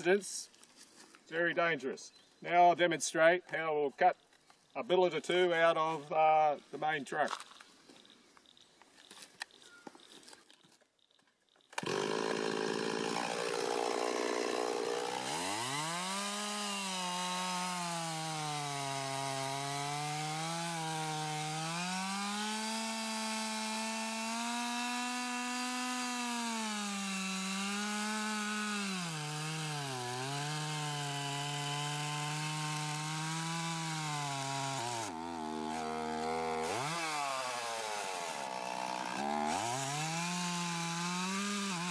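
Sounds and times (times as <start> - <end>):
chainsaw cutting wood: 11.6 - 41.9.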